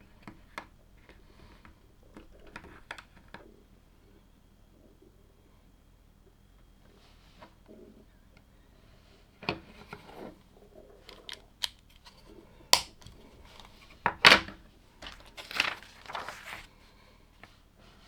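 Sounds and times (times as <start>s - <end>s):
plastic bricks snapping together: 11.1s - 12.2s, 12.8s - 13.7s
plastic pieces rustling and clattering: 15.0s - 16.7s.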